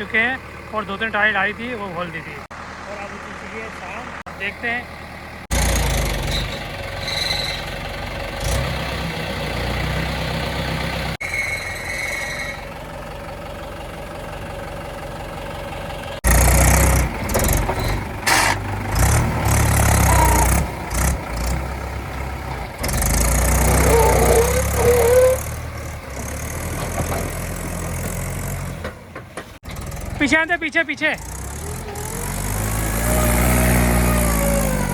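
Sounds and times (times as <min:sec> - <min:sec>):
diesel tractor engine revving: 0:00.0 - 0:11.3, 0:12.6 - 0:34.9
short wavering squeal: 0:06.3 - 0:07.7, 0:11.2 - 0:12.8, 0:23.7 - 0:25.5.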